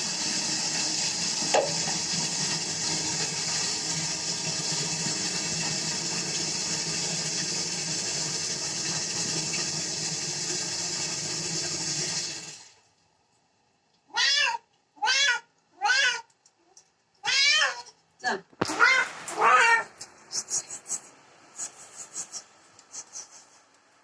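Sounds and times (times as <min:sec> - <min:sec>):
water running from tap: 0:00.0 - 0:12.8
cat meowing: 0:14.1 - 0:16.3, 0:17.2 - 0:17.9, 0:18.6 - 0:19.9.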